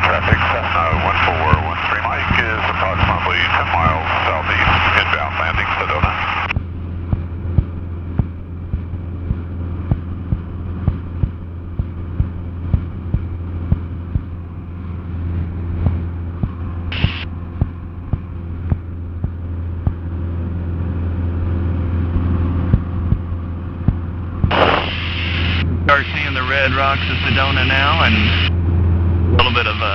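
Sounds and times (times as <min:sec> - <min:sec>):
aircraft engine and propeller droning: 0:00.0 - 0:29.9
short hiss: 0:24.5 - 0:25.6.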